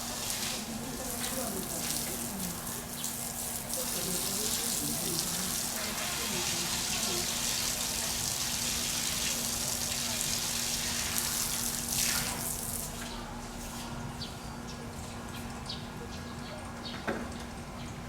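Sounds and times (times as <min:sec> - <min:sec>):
running water hissing: 0:00.0 - 0:12.9.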